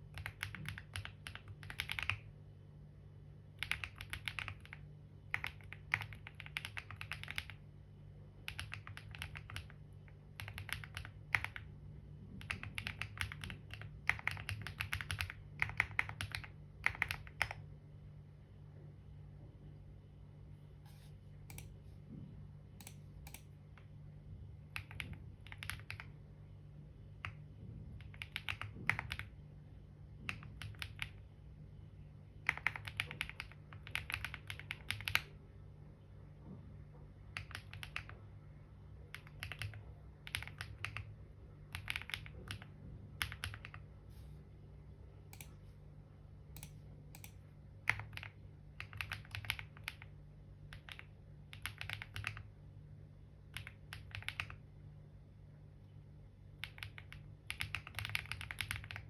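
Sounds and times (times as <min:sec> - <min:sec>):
steady low hum: 0:00.0 - 0:59.0
typing on computer keyboard: 0:00.1 - 0:02.3, 0:03.6 - 0:07.6, 0:08.4 - 0:11.7, 0:12.3 - 0:17.6, 0:24.7 - 0:26.2, 0:28.0 - 0:29.4, 0:30.2 - 0:31.2, 0:32.4 - 0:35.3, 0:37.3 - 0:38.2, 0:39.0 - 0:41.1, 0:41.7 - 0:43.9, 0:46.6 - 0:52.5, 0:53.5 - 0:54.6, 0:56.6 - 0:59.0.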